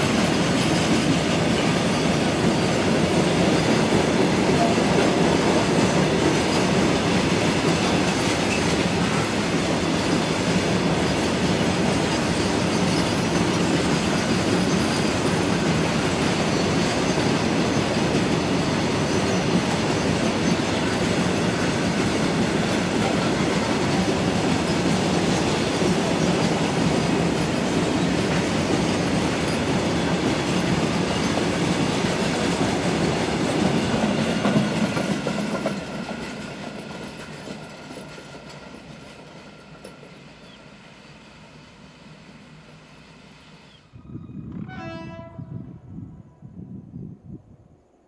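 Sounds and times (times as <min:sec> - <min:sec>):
freight train wagons rolling: 0:00.0 - 0:41.6.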